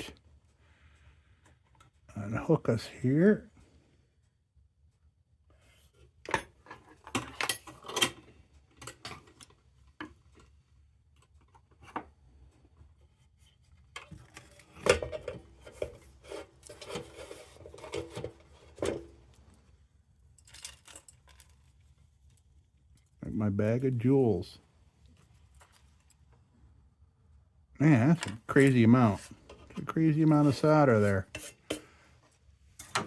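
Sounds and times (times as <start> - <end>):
metal parts clinking and rattling: 20.4 - 21.6.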